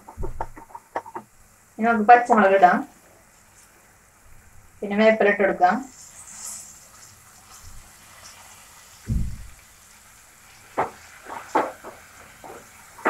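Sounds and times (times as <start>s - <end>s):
food sizzling in oil: 4.8s - 13.0s
dull thump: 9.1s - 9.5s
wooden spatula scraping a pan: 10.7s - 13.0s.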